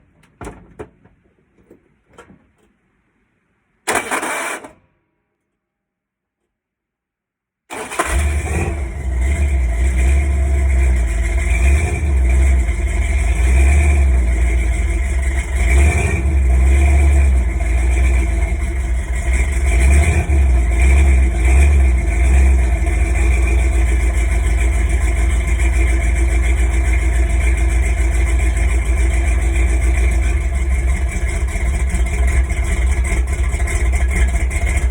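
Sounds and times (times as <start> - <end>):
engine starting and rumbling: 3.9 - 4.8, 7.7 - 34.9.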